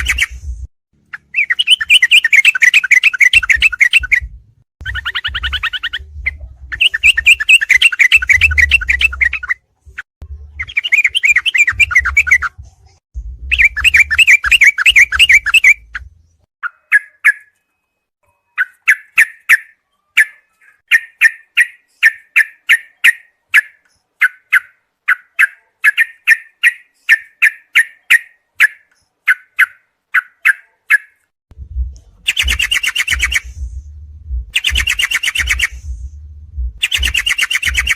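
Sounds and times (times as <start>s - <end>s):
songbird warbling: 1.1s - 4.2s, 32.3s - 33.5s, 34.6s - 35.8s, 36.8s - 37.9s
low hum: 11.8s - 14.2s, 31.5s - 37.8s
short bird chirps: 32.3s - 33.6s, 34.6s - 35.9s.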